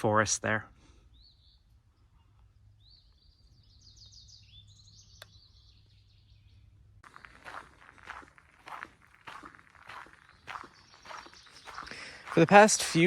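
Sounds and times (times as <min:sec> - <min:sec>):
songbird singing faintly: 0:01.0 - 0:13.0
footsteps on trail: 0:07.0 - 0:13.0.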